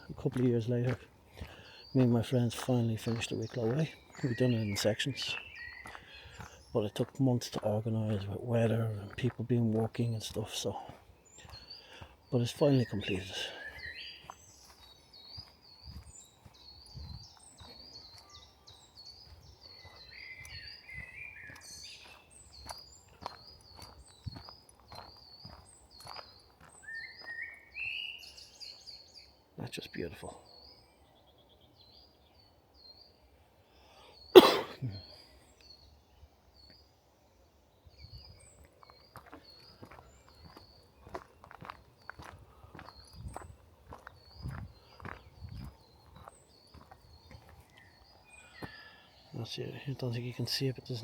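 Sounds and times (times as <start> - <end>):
lower bird chirps: 0.0 - 51.0
soft footsteps on forest path: 0.0 - 51.0
songbird chirping: 0.0 - 51.0
man coughing: 34.3 - 35.1.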